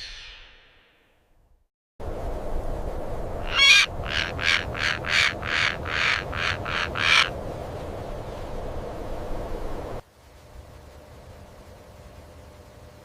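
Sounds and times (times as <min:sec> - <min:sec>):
steady background hiss: 0:01.4 - 0:13.0
bird harsh calls: 0:03.4 - 0:07.3.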